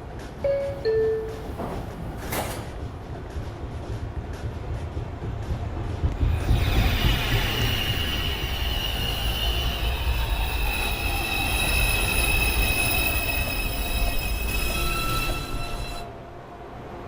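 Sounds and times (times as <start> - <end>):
low train rumble: 0.0 - 17.0
train wheels squealing: 6.2 - 16.1.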